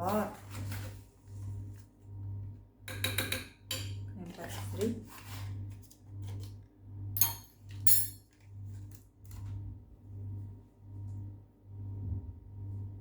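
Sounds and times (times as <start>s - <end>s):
metal spoon clinking on pot: 7.2s - 8.2s
low pulsing hum: 9.4s - 13.0s.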